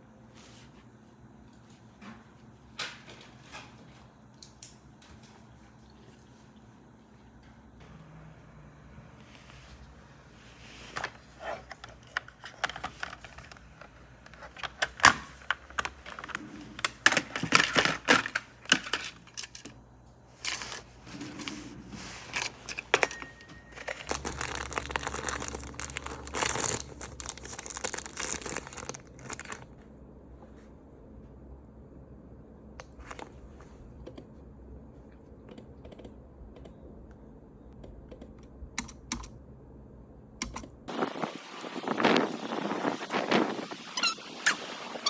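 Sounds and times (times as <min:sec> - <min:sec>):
packaging crinkling: 0:11.0 - 0:19.6, 0:20.4 - 0:29.8
packaging tearing: 0:14.4 - 0:19.1, 0:23.8 - 0:29.8.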